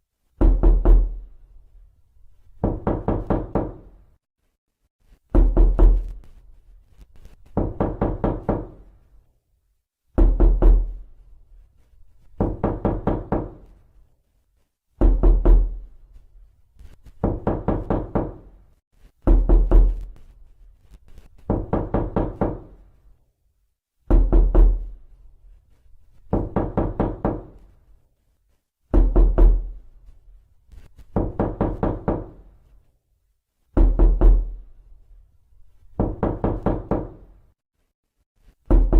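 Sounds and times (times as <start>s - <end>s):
rapid knocking on a door: 0.4s - 1.2s, 2.6s - 4.0s, 5.3s - 6.1s, 7.5s - 8.9s, 10.2s - 11.0s, 12.4s - 13.7s, 15.0s - 15.8s, 17.2s - 18.6s, 19.3s - 20.0s, 21.4s - 22.8s, 24.1s - 24.9s, 26.3s - 27.6s, 28.9s - 29.8s, 31.1s - 32.4s, 33.8s - 34.6s, 36.0s - 37.3s, 38.7s - 38.9s.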